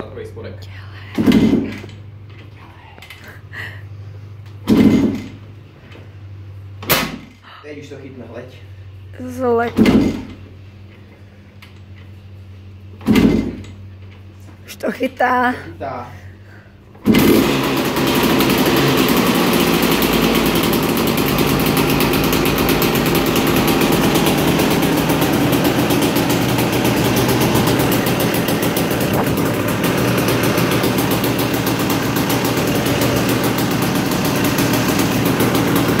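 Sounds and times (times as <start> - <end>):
two-stroke engine running: 1.2 - 2.1, 4.6 - 6.0, 16.5 - 36.0.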